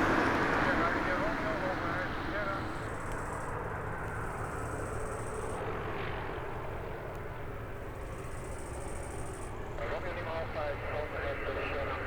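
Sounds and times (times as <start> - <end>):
propeller aircraft engine drone: 0.0 - 12.0.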